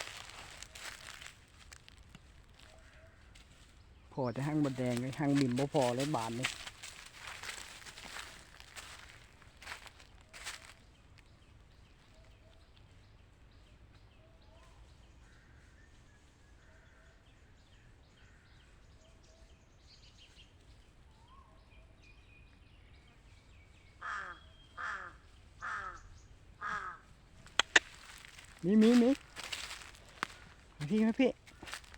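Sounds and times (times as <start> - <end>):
crow cawing loudly: 24.0 - 27.1
faint bird calls: 24.0 - 31.9.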